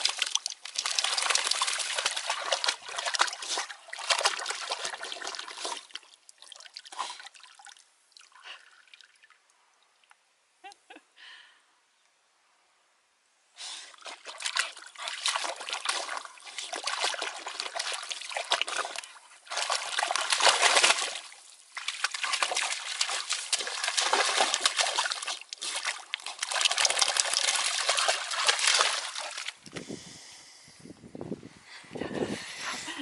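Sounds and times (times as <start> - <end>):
water and mud splashing: 0.0 - 7.7, 13.9 - 30.0.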